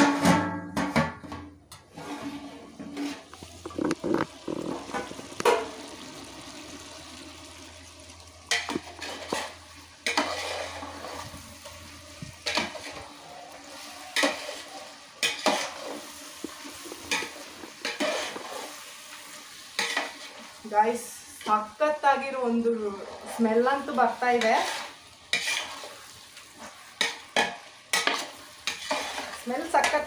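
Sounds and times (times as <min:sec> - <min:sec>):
spoon scraping and knocking a pot: 0:00.0 - 0:05.7, 0:08.5 - 0:11.2, 0:12.4 - 0:13.0, 0:15.2 - 0:18.7, 0:26.6 - 0:30.0
chicken sizzling in a pot: 0:01.8 - 0:30.0.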